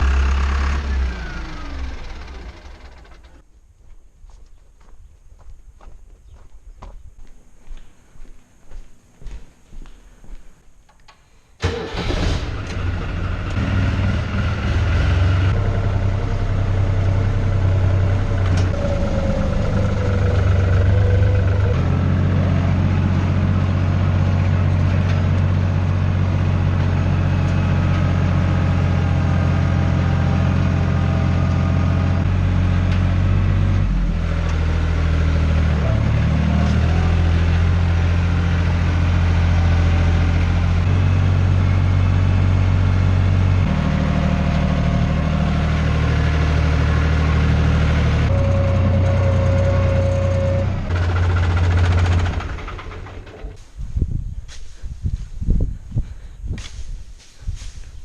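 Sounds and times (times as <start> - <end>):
tractor diesel engine running: 0.0 - 3.4, 11.6 - 53.9.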